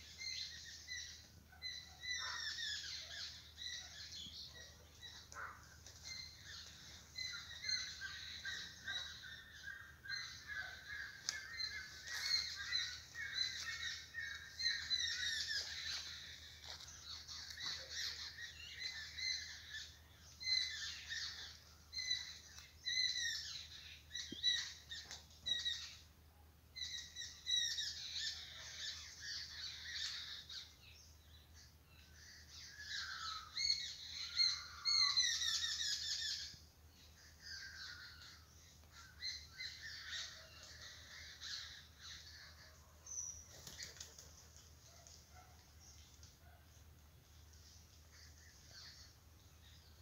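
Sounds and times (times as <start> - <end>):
birds chirping and calling: 0.0 - 50.0.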